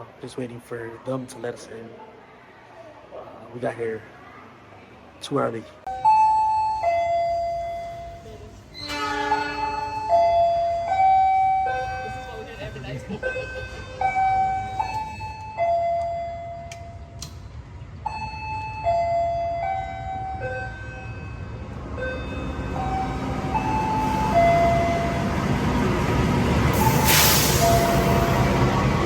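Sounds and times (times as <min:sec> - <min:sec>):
train rumbling: 0:06.0 - 0:29.0
burst of hiss: 0:26.8 - 0:28.2.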